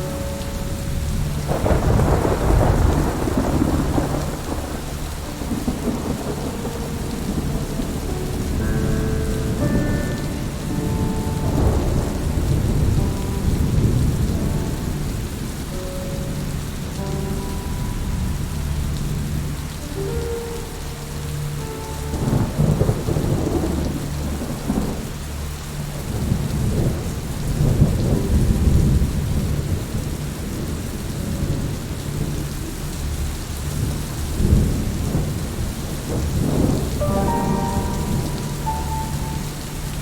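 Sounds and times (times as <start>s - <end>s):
thunder rolling: 0.0s - 19.6s, 22.0s - 25.2s, 33.8s - 40.0s
heavy rain: 0.0s - 40.0s.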